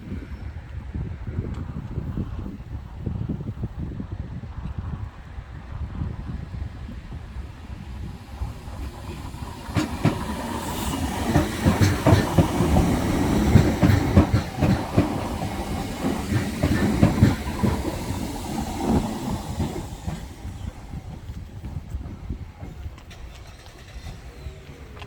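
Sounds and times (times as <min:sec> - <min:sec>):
low train rumble: 0:00.0 - 0:25.0
train wheels clacking over rail joints: 0:07.8 - 0:25.0.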